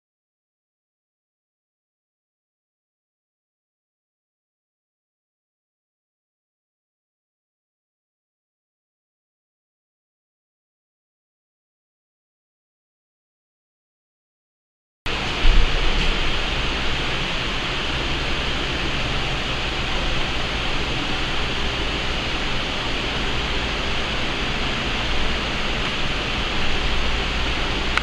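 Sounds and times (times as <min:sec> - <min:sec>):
low hum: 0:15.1 - 0:28.0
steady hiss: 0:15.1 - 0:28.0.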